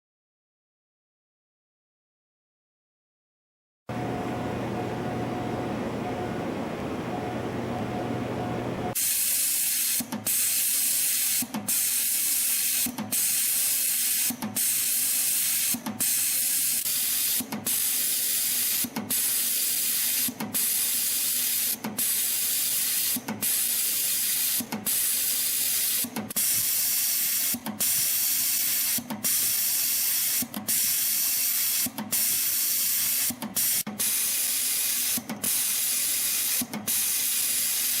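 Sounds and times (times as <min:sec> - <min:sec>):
spring coiling machine hiss: 0:09.0 - 0:38.0.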